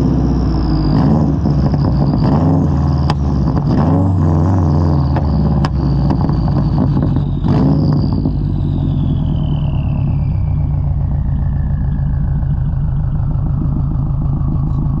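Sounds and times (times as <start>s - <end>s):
car engine driving: 0.0s - 15.0s
thin whine falling in pitch: 0.0s - 15.0s.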